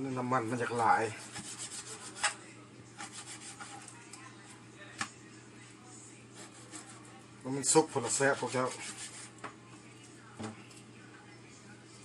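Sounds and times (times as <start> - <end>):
knife sawing through meat: 1.1 - 2.4, 3.0 - 3.9, 6.4 - 7.0, 8.0 - 9.3.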